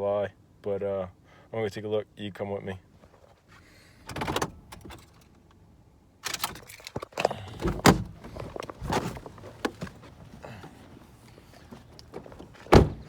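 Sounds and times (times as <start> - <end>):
car door opening: 6.3 - 13.0
car door shutting with thunk: 7.5 - 11.0, 11.7 - 13.0
rustling: 7.7 - 13.0.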